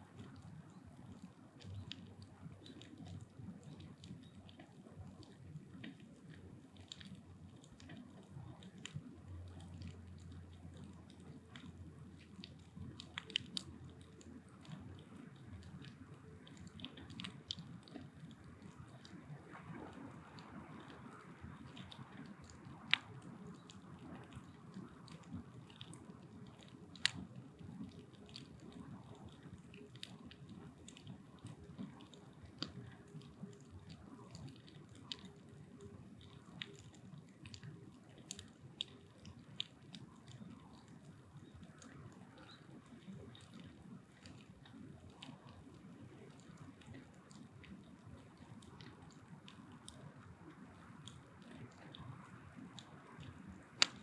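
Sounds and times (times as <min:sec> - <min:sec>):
bonfire crackling: 0:00.0 - 0:54.0
low rumble of flame: 0:00.0 - 0:54.0
wood snapping: 0:53.8 - 0:54.0.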